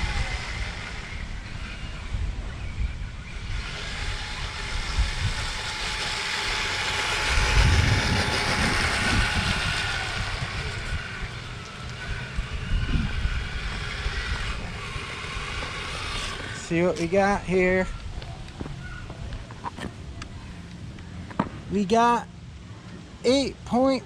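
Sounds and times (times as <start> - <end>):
rc vehicle motor whine: 0.0 - 18.0
wind buffeting microphone: 0.0 - 20.6
track noise: 0.0 - 21.8.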